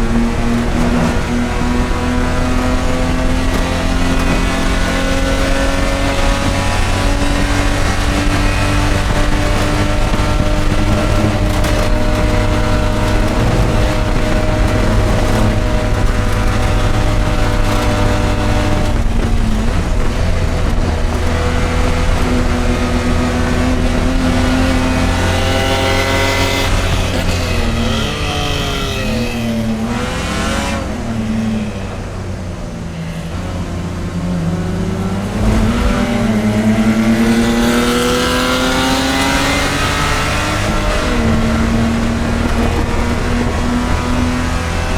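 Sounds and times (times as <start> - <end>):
race car engine at high revs: 0.0 - 44.9.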